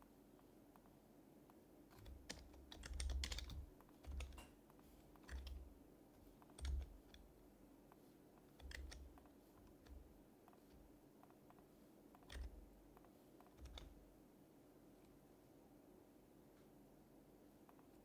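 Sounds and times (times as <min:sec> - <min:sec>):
soft keyboard typing: 0:00.7 - 0:14.2.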